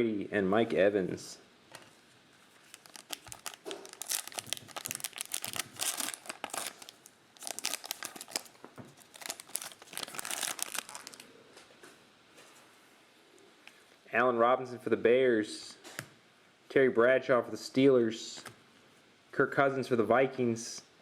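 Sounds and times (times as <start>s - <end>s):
plastic wrappers tearing and crinkling: 2.6s - 11.3s.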